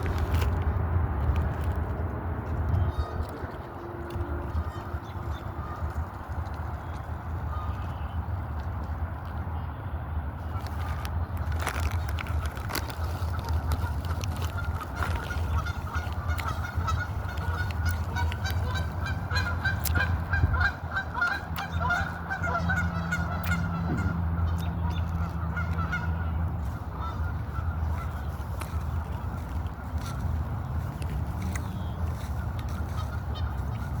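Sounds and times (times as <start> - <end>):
flock of birds chattering: 13.8 - 34.0.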